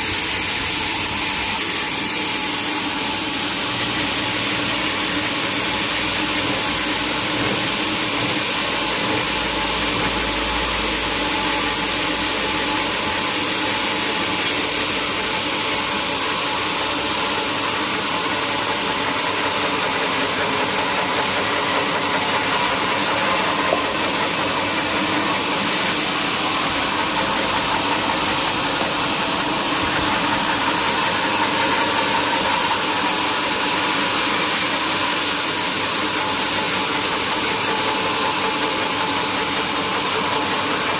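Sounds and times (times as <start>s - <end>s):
loud hiss of machinery: 0.0s - 40.9s.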